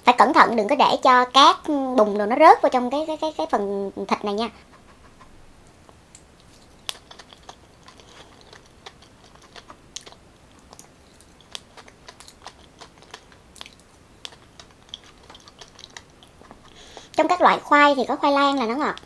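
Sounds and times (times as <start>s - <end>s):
person chewing soft food: 4.6s - 17.2s.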